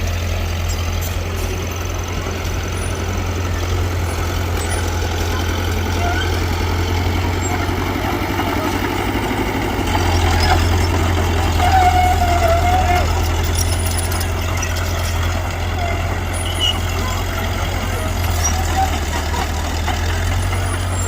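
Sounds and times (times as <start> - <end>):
heavy machinery diesel engine: 0.0 - 21.0.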